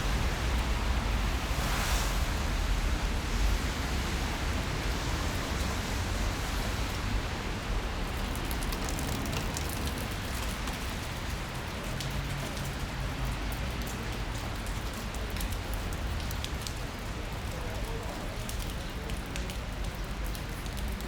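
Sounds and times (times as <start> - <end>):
low rumble: 0.0 - 4.8
rain falling on street: 0.0 - 21.0
close raindrops ticking: 4.6 - 21.0.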